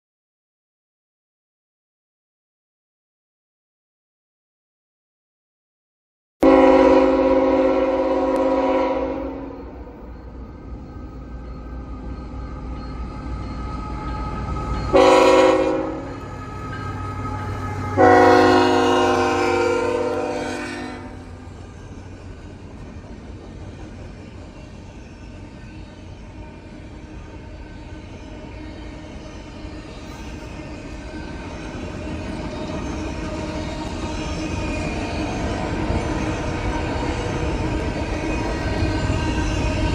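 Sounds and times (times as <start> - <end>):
locomotive air horn blasts: 6.4 - 9.9, 14.9 - 16.6, 17.3 - 21.4
freight train engine drone: 6.4 - 39.9.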